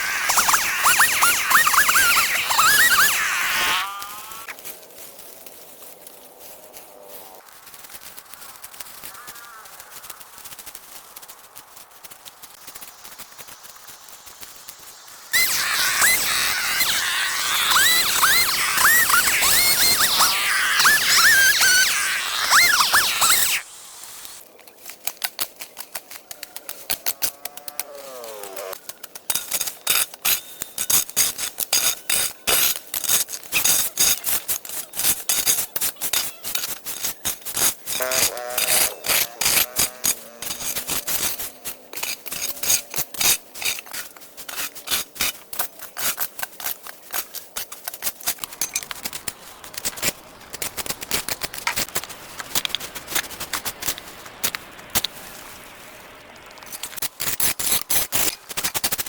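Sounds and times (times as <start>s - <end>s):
hand tool scraping and rasping: 0.0s - 4.6s, 15.3s - 24.4s, 25.0s - 55.5s, 56.7s - 59.0s.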